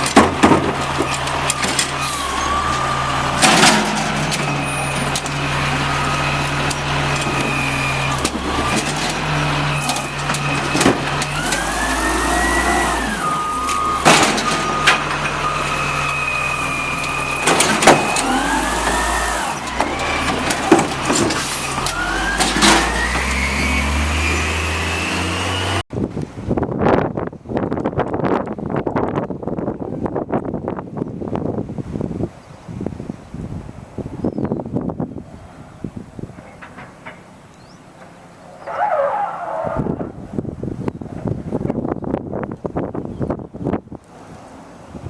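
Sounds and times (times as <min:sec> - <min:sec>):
garbage truck engine revving: 0:00.0 - 0:25.8
hydraulic whining: 0:00.0 - 0:25.8.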